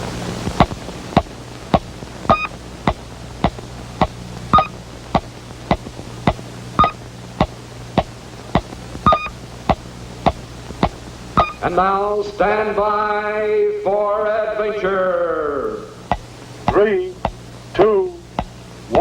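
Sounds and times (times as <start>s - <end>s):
steady low hum: 0.0s - 19.0s
electronic ticks: 0.5s - 11.6s, 16.1s - 17.4s, 18.4s - 18.6s
short high beep: 9.1s - 9.3s, 11.4s - 11.6s.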